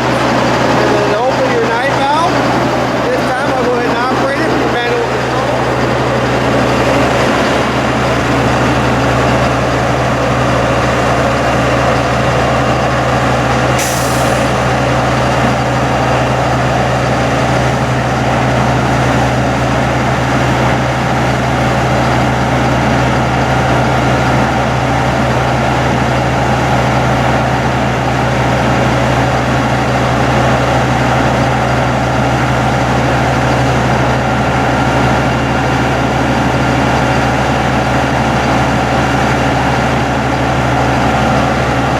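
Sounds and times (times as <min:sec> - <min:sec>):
diesel truck engine running: 0:00.0 - 0:41.9
air hissing: 0:13.7 - 0:14.7.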